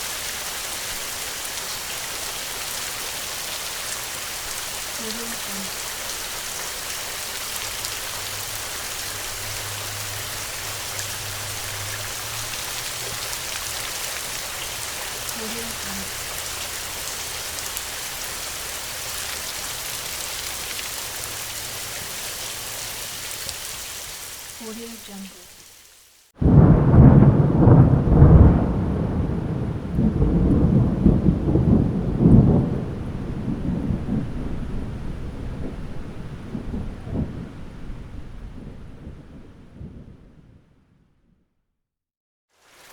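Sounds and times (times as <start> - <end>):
steady rain hiss: 0.0 - 40.1, 42.6 - 42.9
thunder rolling: 26.4 - 41.0.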